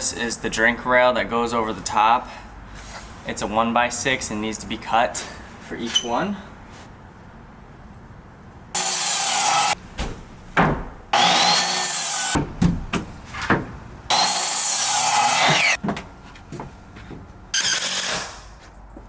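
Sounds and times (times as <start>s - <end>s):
power saw cutting wood: 8.8s - 9.8s, 11.2s - 12.4s, 14.1s - 15.8s, 17.6s - 18.5s
wooden boards knocking: 10.0s - 11.1s, 12.4s - 13.8s.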